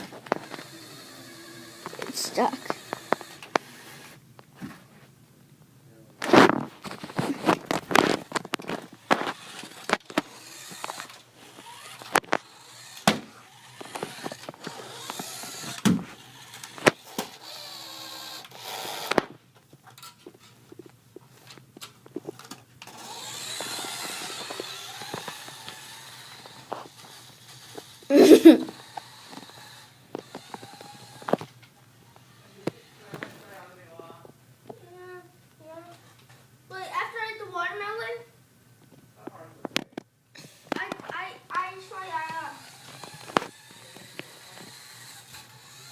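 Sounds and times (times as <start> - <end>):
toy car motor whirring: 0.0 - 4.2, 6.8 - 19.3, 21.8 - 33.8, 40.3 - 45.9.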